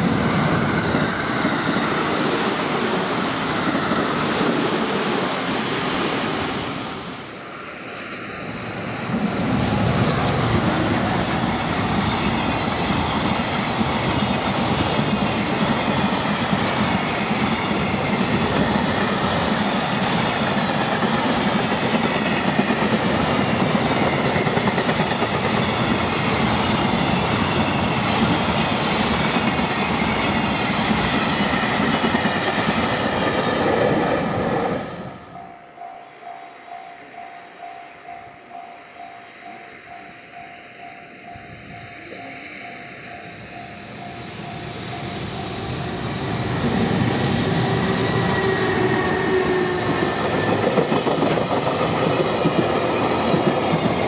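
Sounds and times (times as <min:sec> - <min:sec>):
freight train passing: 0:00.0 - 0:54.0.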